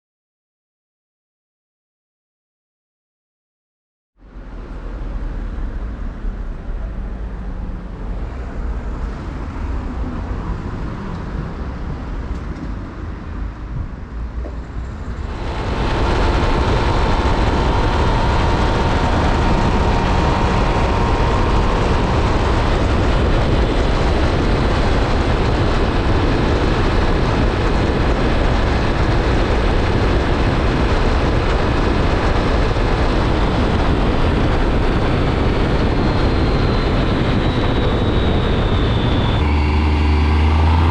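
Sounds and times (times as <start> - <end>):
wind noise: 4.3 - 40.9
motorcycle engine accelerating: 15.0 - 40.9.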